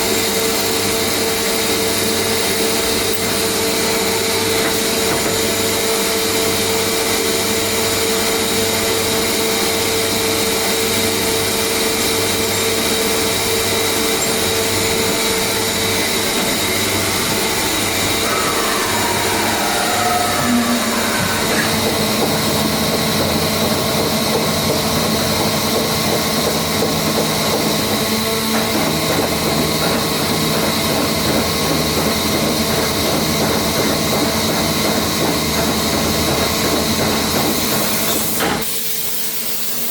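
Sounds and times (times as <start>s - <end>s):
machining centre hum and hiss: 0.0s - 34.2s
machine whining tones: 14.1s - 24.9s.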